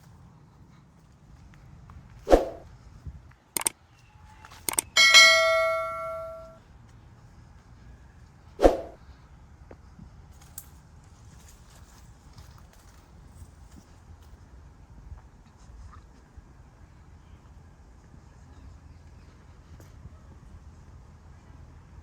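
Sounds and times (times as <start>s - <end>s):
sharp clicks: 4.6s - 6.5s
metallic clang ringing: 4.8s - 6.6s.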